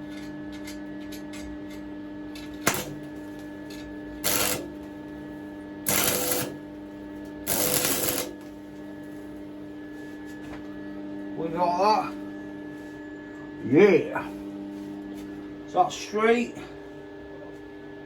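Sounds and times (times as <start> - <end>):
steady hum: 0.6 - 18.0
hand ratchet clicking: 4.3 - 4.6, 5.9 - 6.5, 7.5 - 8.3.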